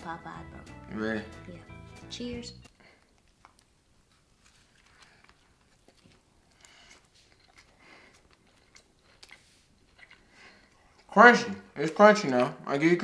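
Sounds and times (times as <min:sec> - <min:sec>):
crunching and chewing: 0:02.7 - 0:11.2.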